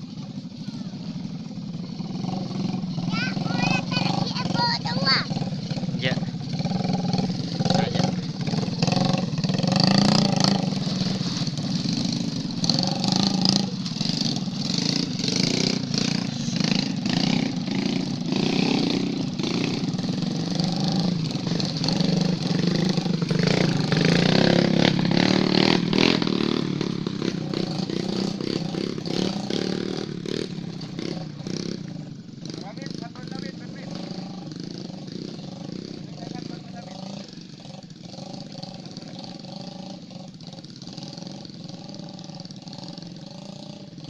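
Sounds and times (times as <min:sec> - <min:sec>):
motocross bike engine revving: 0:00.0 - 0:44.0.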